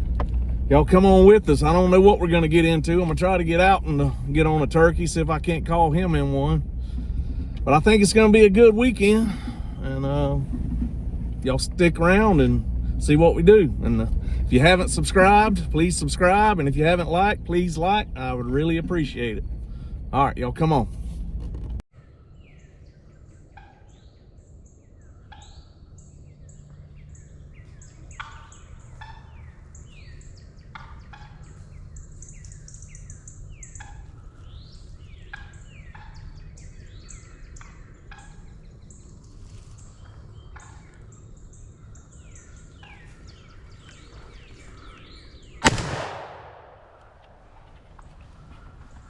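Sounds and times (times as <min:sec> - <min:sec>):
small birds chirping: 0:22.0 - 0:45.8
loud shotgun blast: 0:45.6 - 0:47.6.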